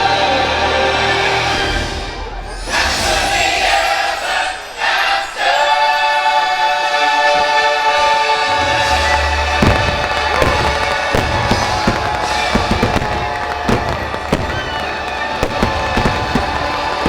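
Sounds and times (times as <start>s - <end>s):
orchestral music: 0.0s - 17.0s
fireworks bangs: 8.6s - 17.0s.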